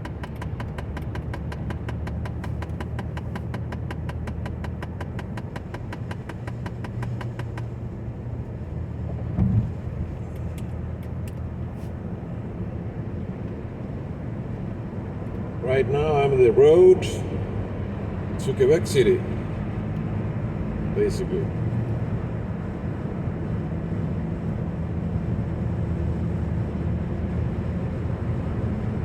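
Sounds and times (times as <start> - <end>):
rapid even ticking: 0.0 - 7.7
car road and engine noise: 0.0 - 29.0
short low thump: 9.3 - 10.1.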